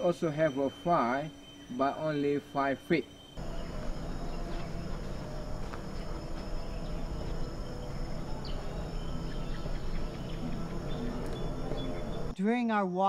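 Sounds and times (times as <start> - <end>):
insects droning: 0.0 - 13.0
low rumble: 3.4 - 12.3.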